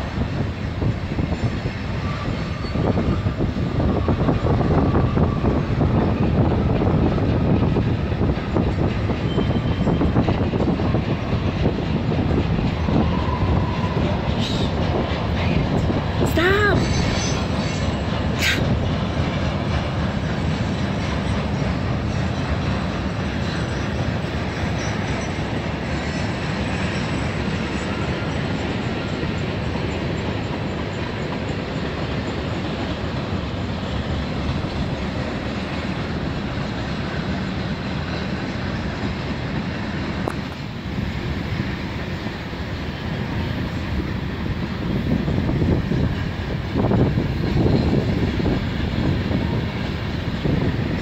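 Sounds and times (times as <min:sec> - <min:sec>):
freight train wheels on rails: 0:00.0 - 0:51.0.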